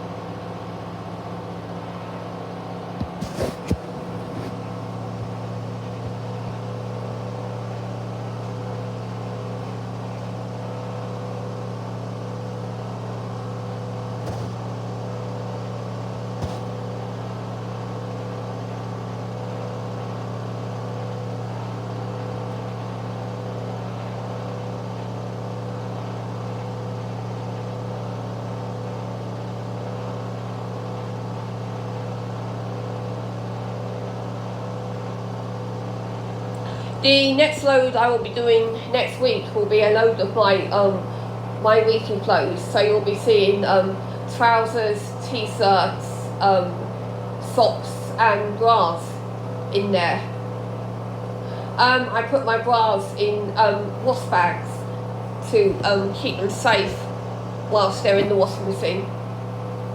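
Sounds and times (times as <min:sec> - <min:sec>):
washing machine spinning: 0:00.0 - 0:31.2, 0:31.8 - 0:59.9.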